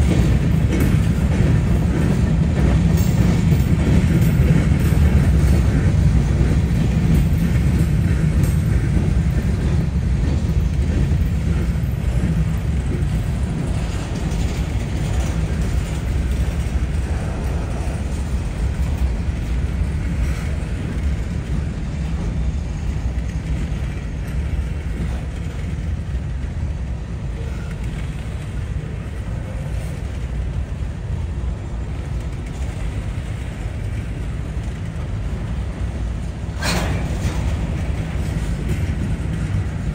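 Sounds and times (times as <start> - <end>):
freight train rumbling: 0.0 - 39.9.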